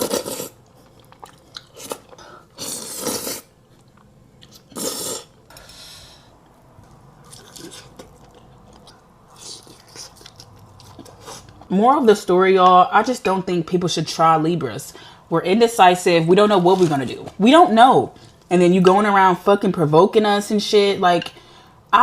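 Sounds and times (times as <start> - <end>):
chewing: 0.0 - 4.9, 6.8 - 11.7.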